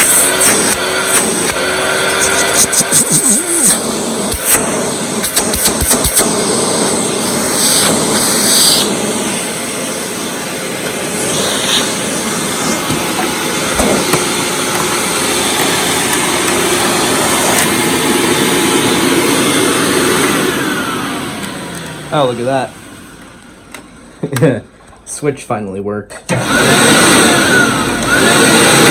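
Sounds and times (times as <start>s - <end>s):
hissy suction surges: 0.0s - 23.2s
vacuum cleaner running: 0.0s - 25.2s, 26.3s - 28.9s
sharp clicks: 5.2s - 6.3s.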